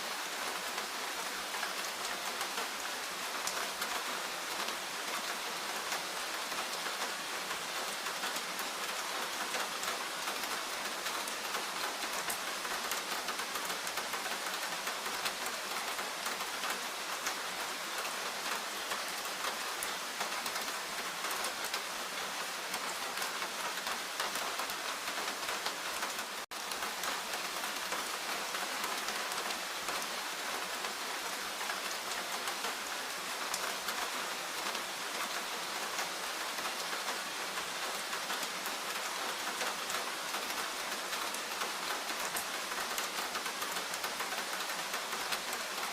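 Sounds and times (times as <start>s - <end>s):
rain falling in forest: 0.0s - 45.9s.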